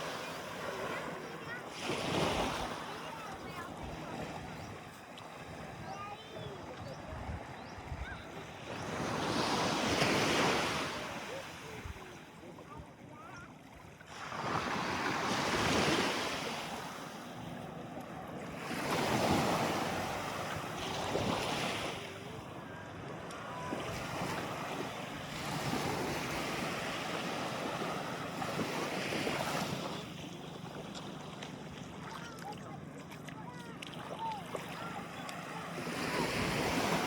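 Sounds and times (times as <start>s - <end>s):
sea waves washing in: 0.0s - 12.4s, 14.0s - 37.0s
wind on microphone: 5.5s - 9.2s.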